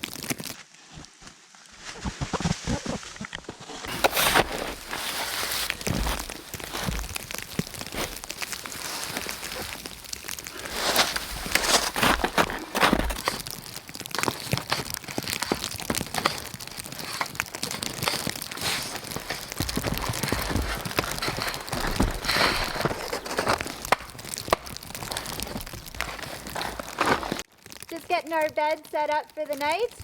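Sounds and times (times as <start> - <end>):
twigs crackling and snapping: 0.0 - 30.0
needles rustling: 3.7 - 27.5.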